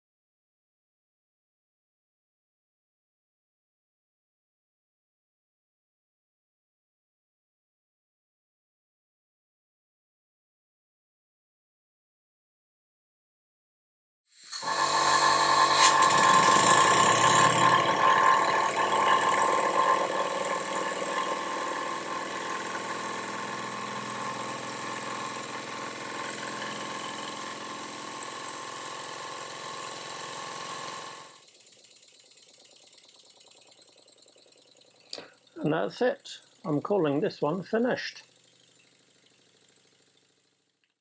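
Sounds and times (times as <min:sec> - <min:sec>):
model engine mechanical clatter: 0:14.5 - 0:41.0.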